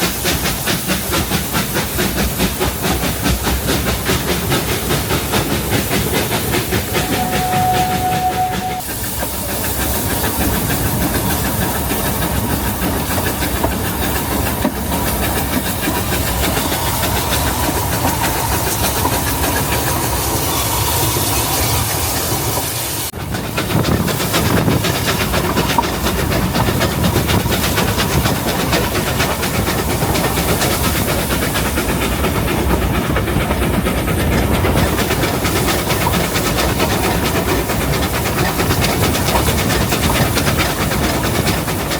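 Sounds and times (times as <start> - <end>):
carriages clattering over rail joints: 0.0 - 41.9
steam locomotive chuffing and hissing: 0.0 - 41.9
steady high tone: 6.9 - 8.8.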